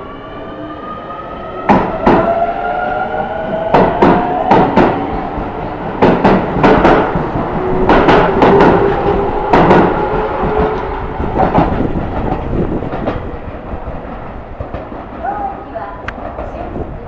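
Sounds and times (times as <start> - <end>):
steady train hum: 0.0 - 17.0
train wheels clacking over rail joints: 3.7 - 17.0.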